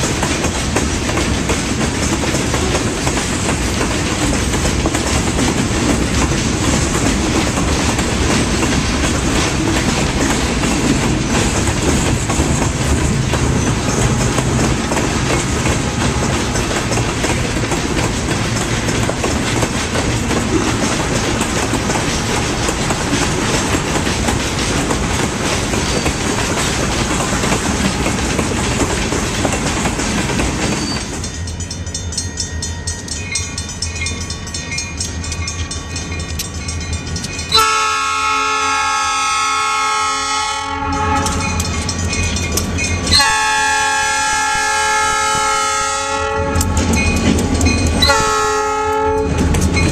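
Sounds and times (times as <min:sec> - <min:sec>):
train air horn blasts: 0:37.5 - 0:41.6, 0:43.1 - 0:46.8, 0:48.0 - 0:49.5.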